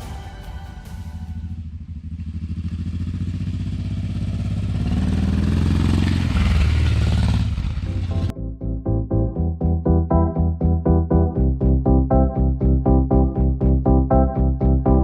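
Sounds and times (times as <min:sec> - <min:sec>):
motorcycle engine accelerating: 0:01.2 - 0:08.3.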